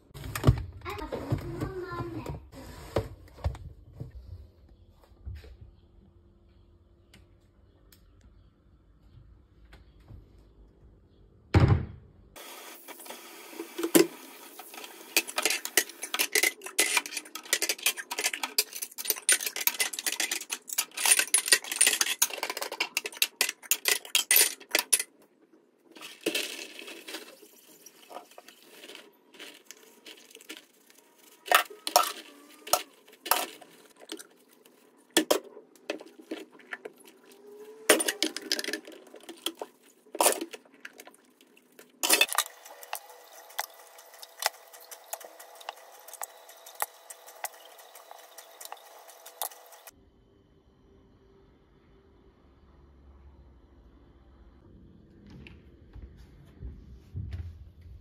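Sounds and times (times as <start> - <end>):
containers and lids clinking: 13.6 - 25.1, 25.9 - 41.2, 41.8 - 49.9
dry food pouring into container: 26.0 - 33.9.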